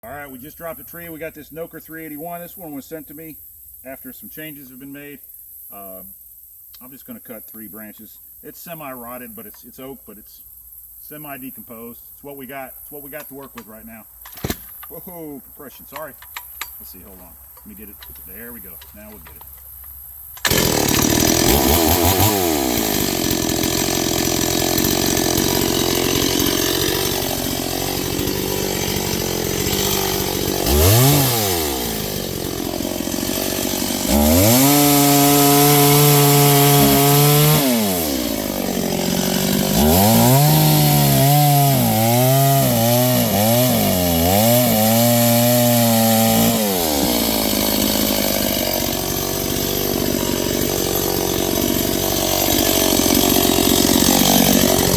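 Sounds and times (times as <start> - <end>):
chainsaw cutting branches: 13.2 - 54.9
chainsaw revving: 20.3 - 54.9.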